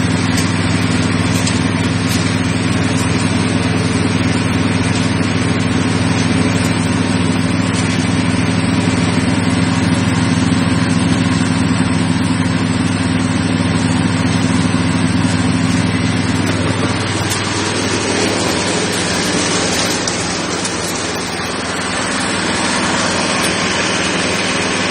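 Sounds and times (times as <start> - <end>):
engine hum: 0.0 - 24.9
mill grinding hiss: 0.0 - 24.9.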